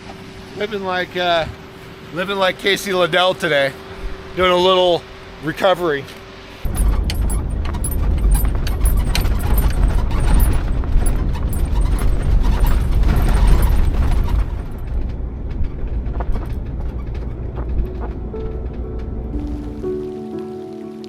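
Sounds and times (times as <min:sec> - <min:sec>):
heavy vehicle rumble: 0:00.0 - 0:21.0
metallic rattling and clicking: 0:06.7 - 0:17.9.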